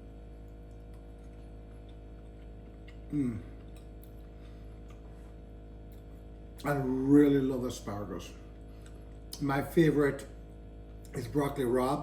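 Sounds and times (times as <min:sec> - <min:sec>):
steady low hum: 0:00.0 - 0:12.0
man's short vocal sound: 0:03.1 - 0:03.5.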